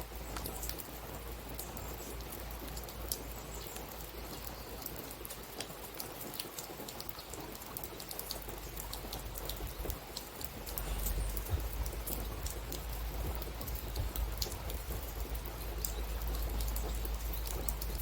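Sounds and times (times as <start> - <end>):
raindrops ticking: 0.0 - 18.0
steady rain: 0.0 - 18.0
low rumble: 10.6 - 15.0.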